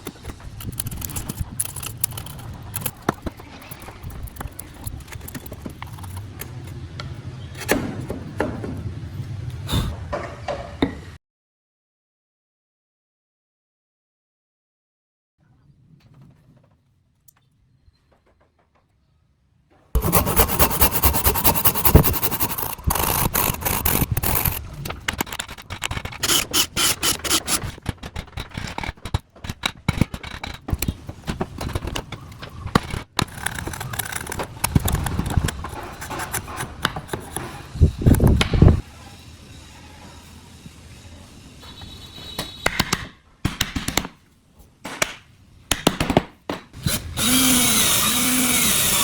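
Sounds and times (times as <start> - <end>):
tools scraping wood: 0.0 - 6.8, 20.0 - 38.8.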